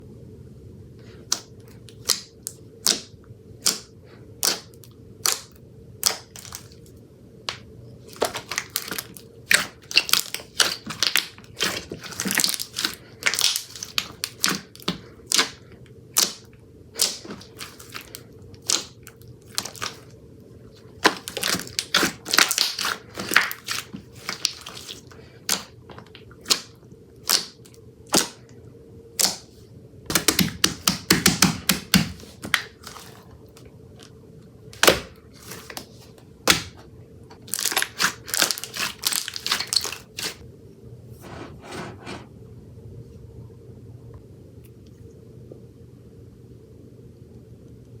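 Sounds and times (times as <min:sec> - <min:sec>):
slime crackling: 0:01.3 - 0:06.8, 0:08.1 - 0:15.6, 0:16.2 - 0:20.1, 0:20.9 - 0:25.8, 0:26.4 - 0:28.4, 0:34.8 - 0:35.9, 0:37.4 - 0:40.4.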